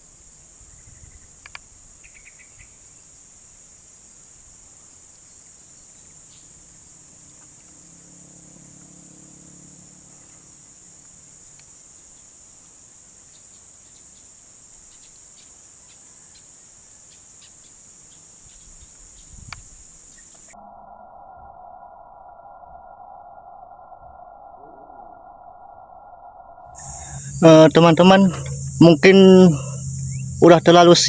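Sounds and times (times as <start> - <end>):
insects buzzing: 0.0 - 25.2, 26.7 - 31.0
faint ticks: 1.4 - 2.3, 7.3 - 7.8, 11.0 - 12.3, 13.3 - 20.5, 28.2 - 28.8.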